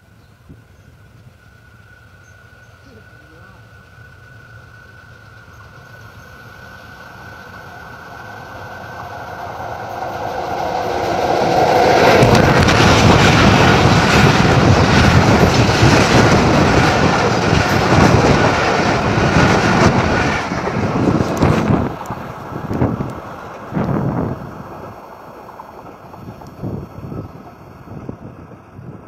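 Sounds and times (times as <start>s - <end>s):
passenger train passing at speed: 0.0s - 29.0s
wheels clacking over rail joints: 6.6s - 28.8s.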